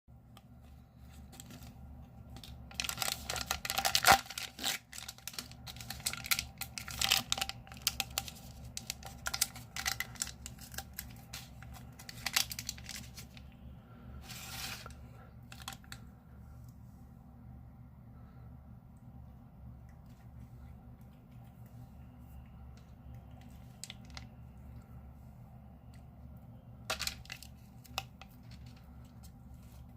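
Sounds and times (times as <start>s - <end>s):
plastic wrapper crackling: 1.3s - 13.5s, 14.7s - 16.0s, 23.5s - 24.3s, 26.9s - 28.9s.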